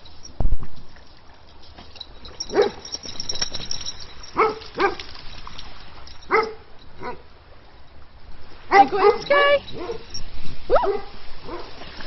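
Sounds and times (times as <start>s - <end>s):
dog barking: 2.5s - 2.8s, 4.4s - 5.0s, 6.3s - 7.2s, 8.7s - 10.1s, 10.8s - 11.8s.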